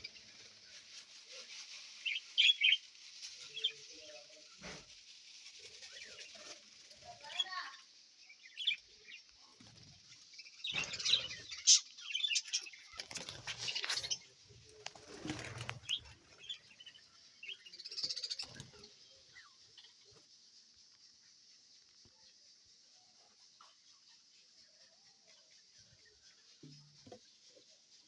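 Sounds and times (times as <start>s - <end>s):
budgerigars chirping: 2.0s - 2.8s
wings flapping: 9.6s - 11.8s, 12.4s - 19.0s.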